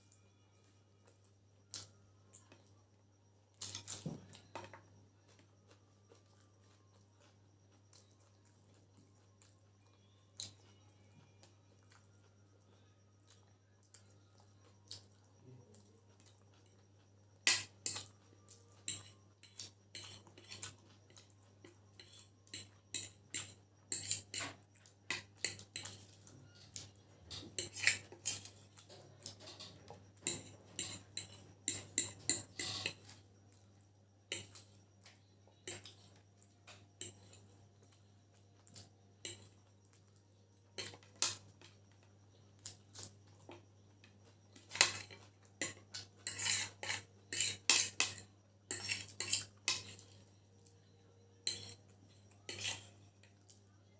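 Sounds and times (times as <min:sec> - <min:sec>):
faint steady hum: 0:00.0 - 0:53.9
cutlery scraping a plate: 0:17.4 - 0:18.1, 0:18.7 - 0:33.6, 0:34.3 - 0:38.0, 0:38.6 - 0:39.6, 0:40.8 - 0:41.8, 0:44.5 - 0:50.4, 0:51.4 - 0:53.6.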